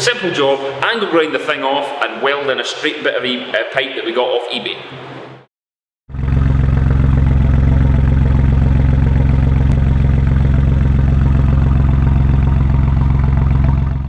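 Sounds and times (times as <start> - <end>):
diesel engine idling: 6.1 - 14.0.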